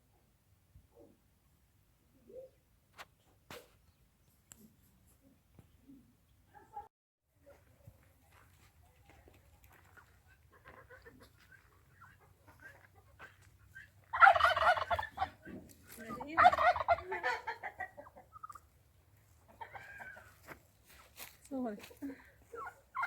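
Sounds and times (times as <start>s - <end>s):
poultry warbling calls: 10.5s - 18.7s, 22.4s - 23.0s.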